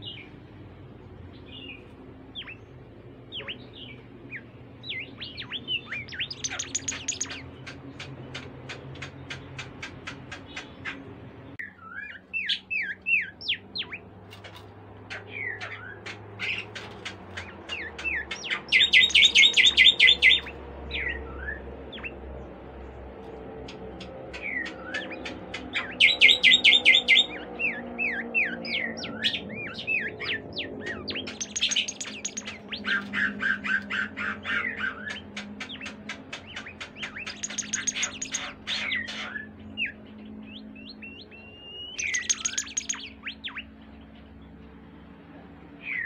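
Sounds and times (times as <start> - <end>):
songbird singing trills and whistles: 1.3 - 11.0, 11.6 - 14.1, 17.4 - 22.2, 24.4 - 44.2.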